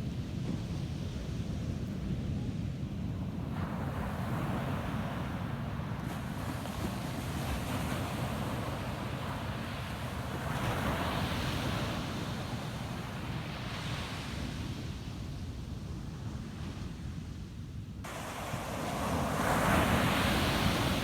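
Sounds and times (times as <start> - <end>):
ocean waves washing up beach: 18.0 - 21.0.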